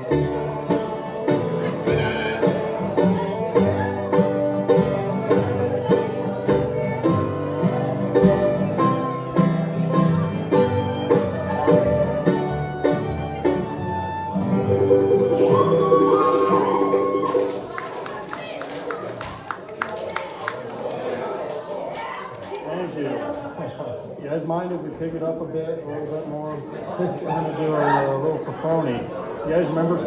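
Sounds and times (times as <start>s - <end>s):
fiddle: 0.0s - 17.5s
banjo: 0.0s - 17.7s
acoustic guitar: 0.0s - 17.8s
bluegrass band playing: 0.0s - 17.8s.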